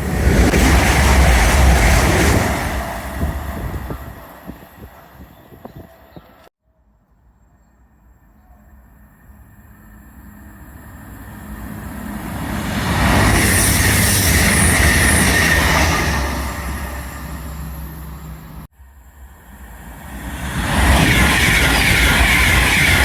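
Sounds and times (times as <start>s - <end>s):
train passing rumble: 0.0s - 6.5s, 8.5s - 23.0s.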